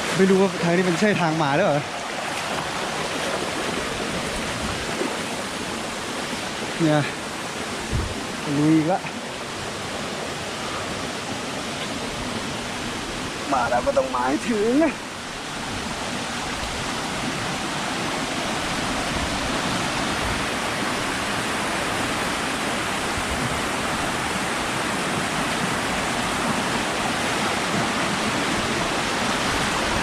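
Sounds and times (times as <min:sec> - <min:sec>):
waterfall roaring: 0:00.0 - 0:30.0.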